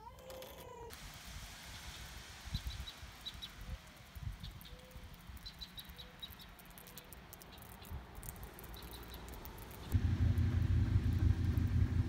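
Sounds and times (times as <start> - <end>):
small bird chirping: 2.6 - 10.0.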